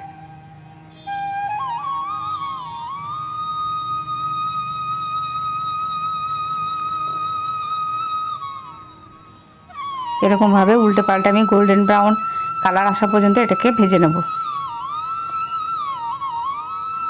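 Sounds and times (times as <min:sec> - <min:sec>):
high whistling tone: 0:00.0 - 0:17.0.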